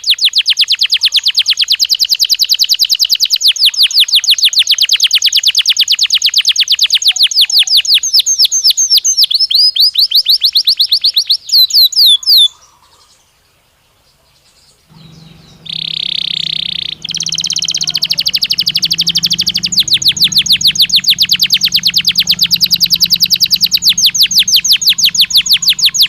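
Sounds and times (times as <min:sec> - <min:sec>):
canary singing trills: 0:14.9 - 0:26.0.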